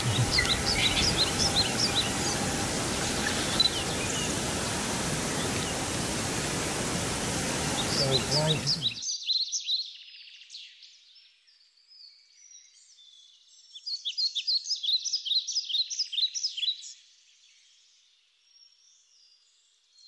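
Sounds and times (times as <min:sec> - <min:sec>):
small birds chirping chorus: 0:00.0 - 0:20.0.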